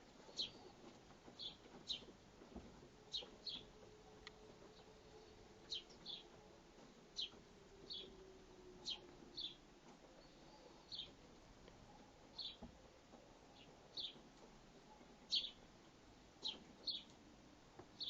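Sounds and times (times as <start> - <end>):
sparrows chirping: 0.1 - 2.1, 3.1 - 3.9, 4.6 - 6.4, 7.1 - 11.2, 12.3 - 12.7, 13.5 - 14.2, 15.2 - 15.7, 16.4 - 17.2.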